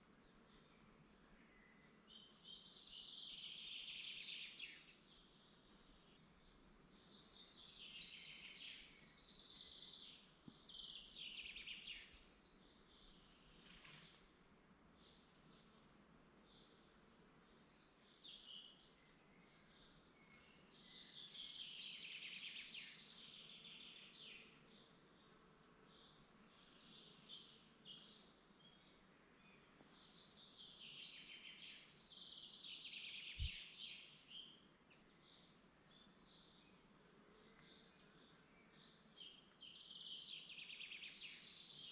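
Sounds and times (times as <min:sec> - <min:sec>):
bird trilling song: 0:30.0 - 0:36.6.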